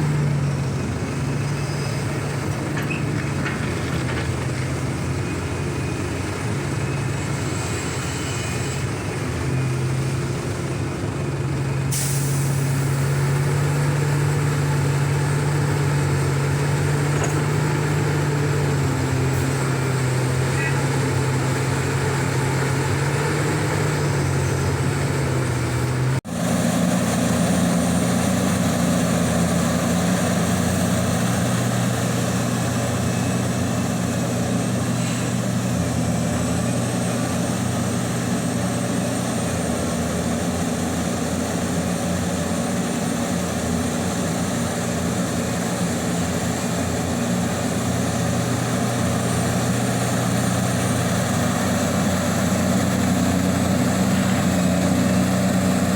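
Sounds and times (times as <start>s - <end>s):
diesel excavator engine droning: 0.0s - 55.9s.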